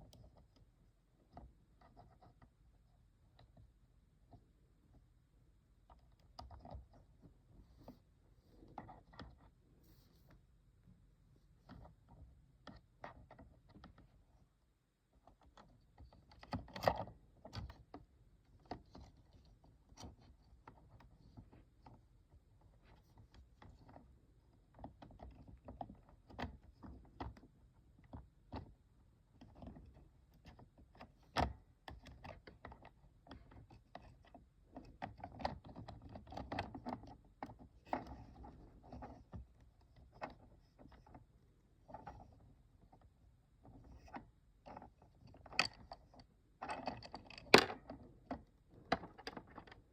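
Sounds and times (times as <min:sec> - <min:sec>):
plastic parts clicking and tapping: 0:15.2 - 0:22.0, 0:22.6 - 0:49.9.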